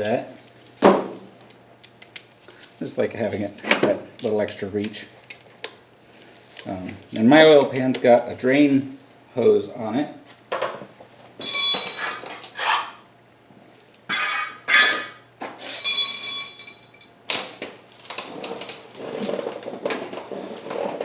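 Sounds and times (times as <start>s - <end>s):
metal hand tools clanking: 14.2s - 17.2s.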